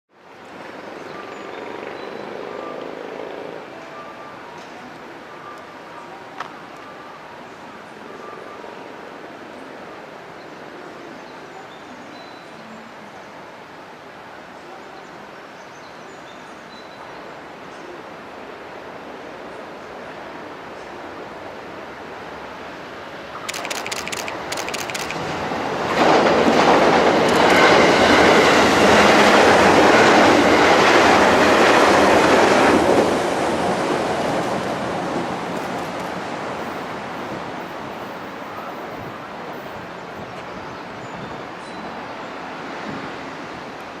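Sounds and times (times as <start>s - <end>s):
electric train passing: 23.5s - 38.6s.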